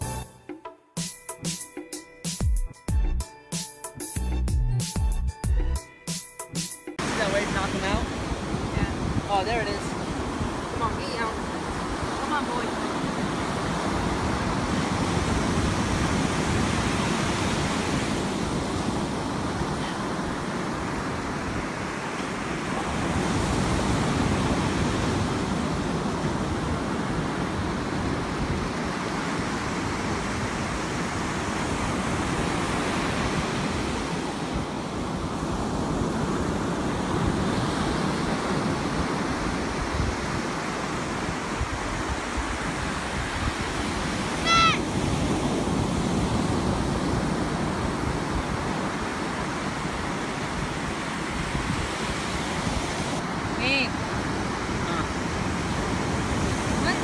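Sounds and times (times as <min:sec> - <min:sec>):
ocean surf washing in: 0:07.0 - 0:57.0
wind buffeting microphone: 0:07.0 - 0:57.0
short high-pitched cry: 0:44.4 - 0:44.8.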